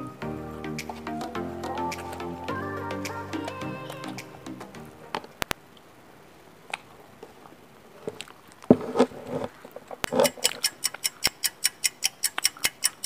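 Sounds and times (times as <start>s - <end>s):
fast even ticking: 10.1s - 13.0s.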